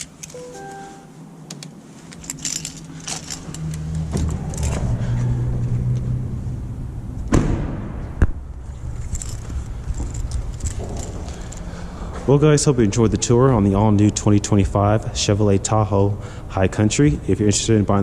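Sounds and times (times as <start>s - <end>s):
keys jangling: 0.0s - 5.0s, 8.8s - 11.8s
low steady rumble: 0.0s - 18.0s.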